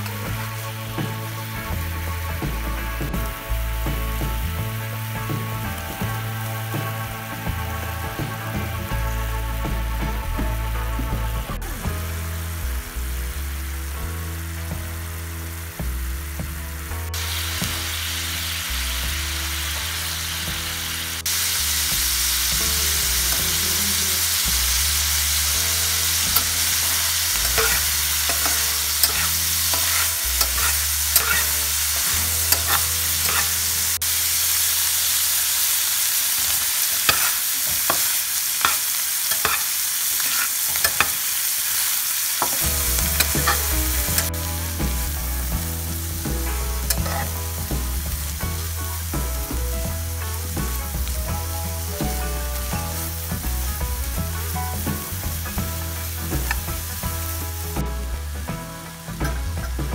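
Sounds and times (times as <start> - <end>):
fish sizzling in hot oil: 17.2 - 57.8
metal spatula scraping a pan: 26.0 - 34.0, 36.3 - 41.4, 42.4 - 45.0, 46.8 - 47.4.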